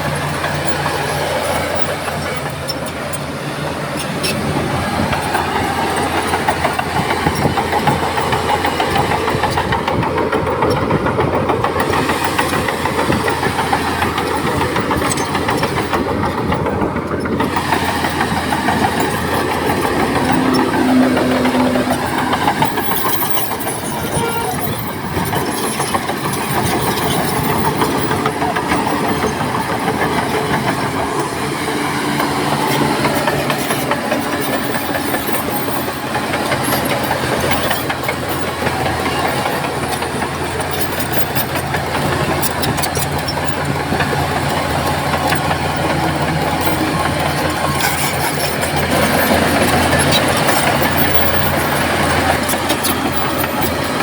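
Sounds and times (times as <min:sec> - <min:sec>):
bulldozer diesel engine: 0:00.0 - 0:54.0
steel tracks clanking: 0:00.0 - 0:54.0.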